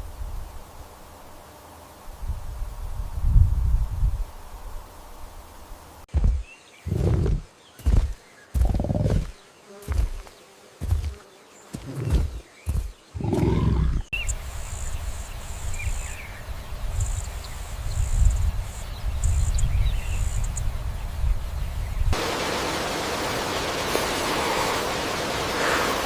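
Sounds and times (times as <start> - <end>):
deep animal growls: 6.8 - 7.5, 8.6 - 9.3, 13.1 - 14.2.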